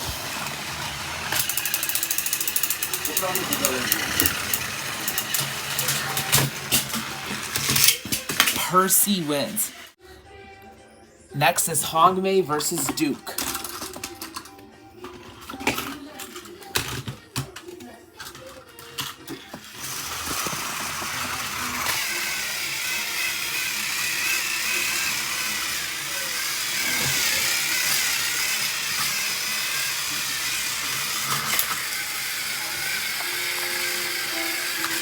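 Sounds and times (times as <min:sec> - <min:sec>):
toy train motors whirring: 0:00.0 - 0:10.0, 0:12.6 - 0:35.0.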